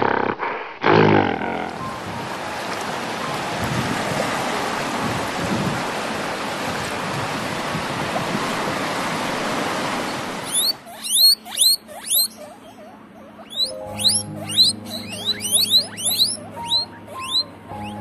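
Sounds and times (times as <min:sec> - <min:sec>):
small waves washing on shore: 0:01.8 - 0:12.4
guinea pig squeaking: 0:10.4 - 0:18.0.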